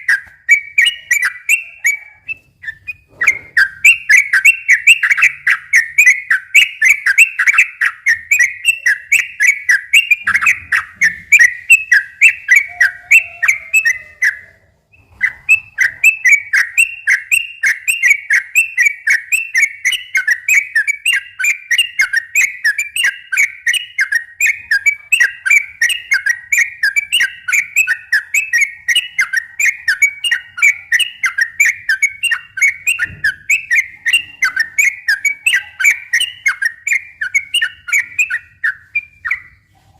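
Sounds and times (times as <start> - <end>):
bulbul chirping song: 0.0 - 39.9.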